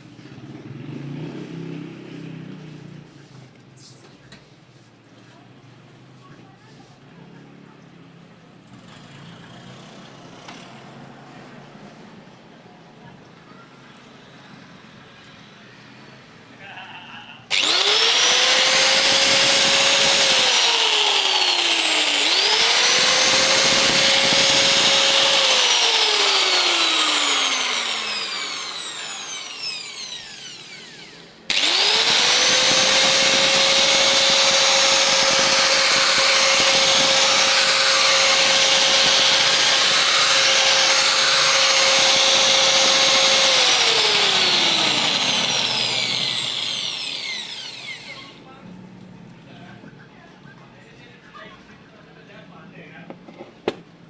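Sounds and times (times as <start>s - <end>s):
angle grinder motor whining: 17.5s - 48.5s.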